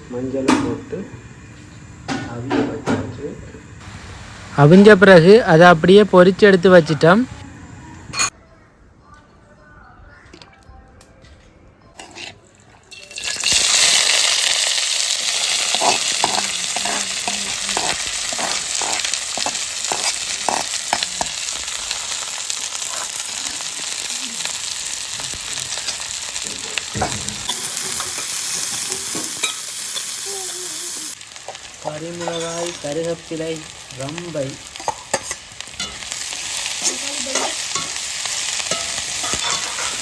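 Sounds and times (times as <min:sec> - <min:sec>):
food sizzling in hot oil: 0:00.0 - 0:08.4, 0:12.8 - 0:40.0
spoon scraping a pan: 0:12.0 - 0:13.2, 0:15.2 - 0:21.6, 0:34.8 - 0:40.0.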